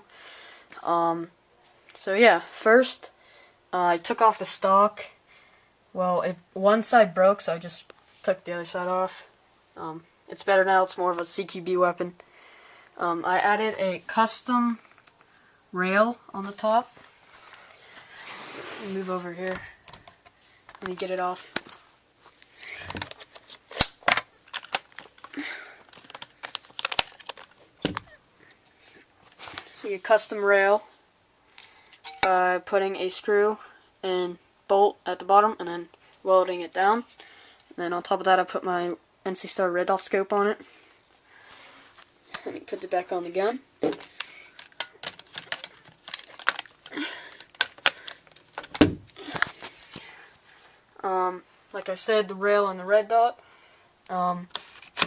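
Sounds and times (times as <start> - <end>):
sharp clicks of toy gun parts: 43.9 - 49.5.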